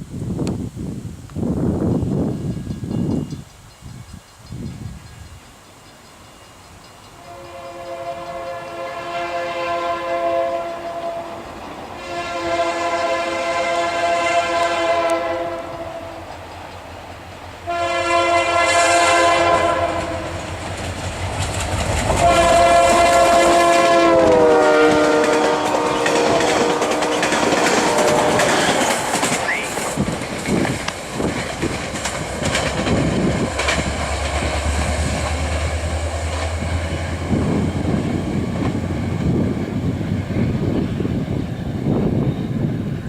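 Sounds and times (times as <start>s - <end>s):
train rumbling on rails: 1.4s - 43.0s
locomotive horn blasts: 7.2s - 16.3s, 17.7s - 20.5s, 22.1s - 28.8s.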